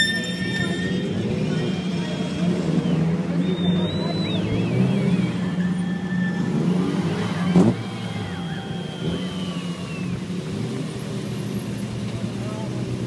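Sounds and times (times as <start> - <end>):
engine rev blip: 0.0 - 11.0
car engines idling: 0.0 - 13.0.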